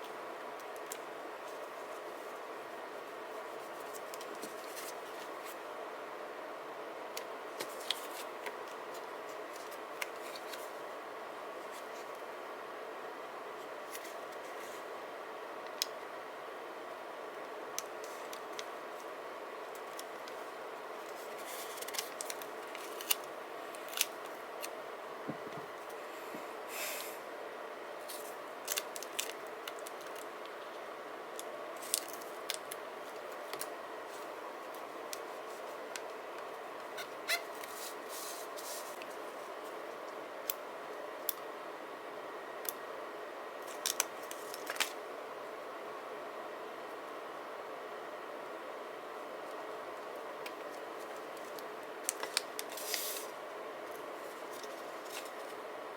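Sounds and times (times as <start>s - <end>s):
paper rustling: 21.0s - 24.1s, 50.7s - 53.3s.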